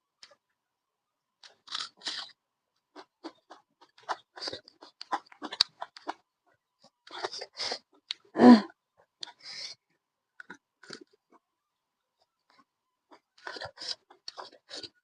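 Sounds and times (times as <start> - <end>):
chewing and crunching: 1.4 - 8.3, 10.4 - 11.4, 12.6 - 15.0.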